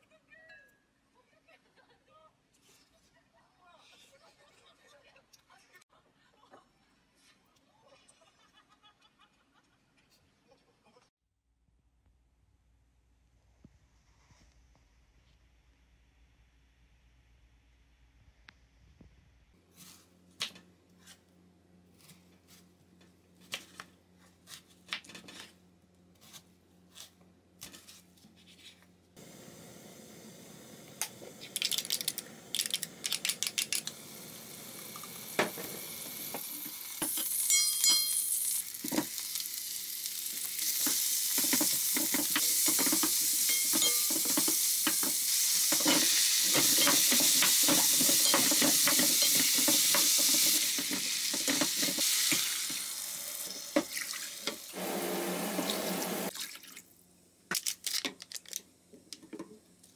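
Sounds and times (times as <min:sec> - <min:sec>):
food frying in a hot pan: 0:29.2 - 0:56.4
utensil clicks: 0:31.0 - 0:34.0
kitchen clicks and knocks: 0:41.4 - 0:52.4.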